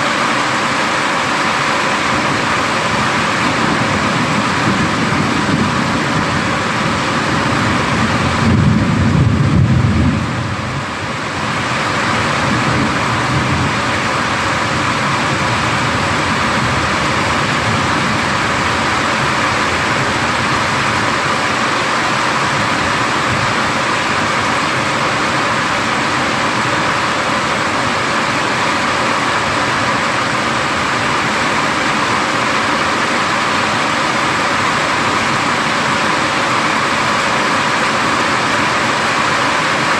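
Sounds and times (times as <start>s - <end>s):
heavy rain falling: 0.0s - 39.9s
thunder rumbling: 2.0s - 21.7s.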